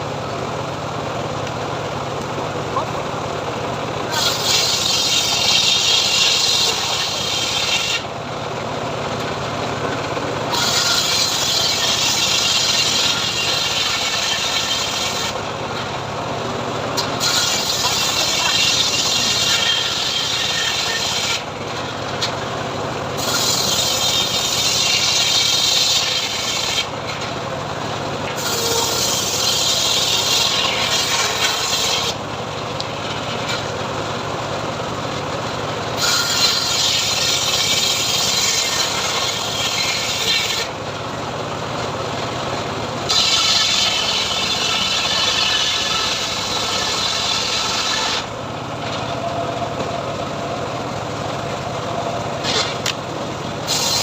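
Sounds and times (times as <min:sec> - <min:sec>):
sawmill motor running: 0:00.0 - 0:54.0
saw blade hissing through wood: 0:04.1 - 0:08.1, 0:10.5 - 0:15.4, 0:17.0 - 0:21.5, 0:23.2 - 0:27.0, 0:28.3 - 0:32.2, 0:36.0 - 0:40.8, 0:43.1 - 0:48.3, 0:52.4 - 0:52.9, 0:53.6 - 0:54.0.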